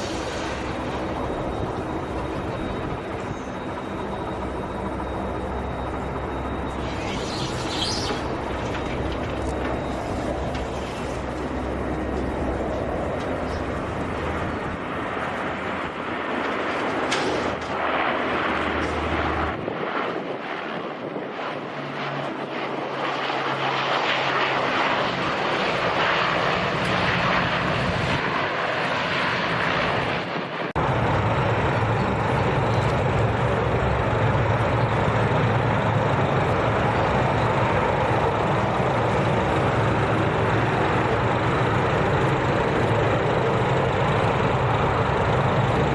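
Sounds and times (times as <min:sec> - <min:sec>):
aircraft engines running: 0:00.0 - 0:45.9.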